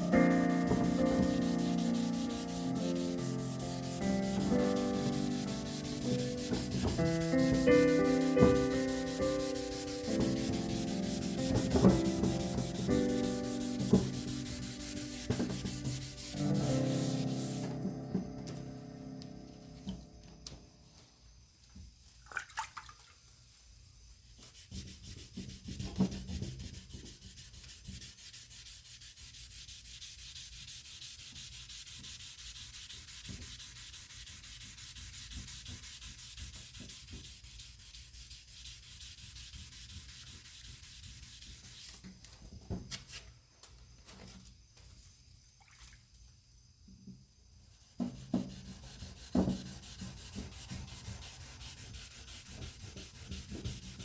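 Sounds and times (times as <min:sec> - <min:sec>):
sandpaper sanding paint: 0:00.0 - 0:17.8, 0:24.4 - 0:42.0, 0:47.8 - 0:54.0.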